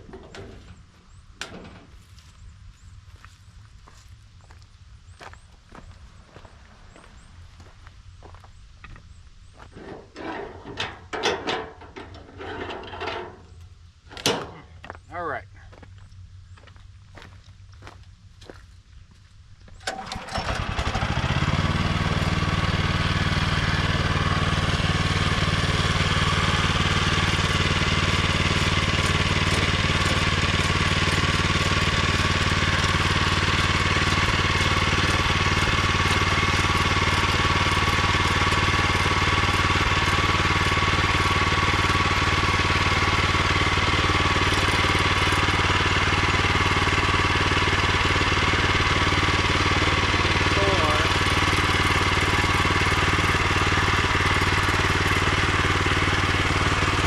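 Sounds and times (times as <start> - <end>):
small gas engine running: 19.8 - 57.0.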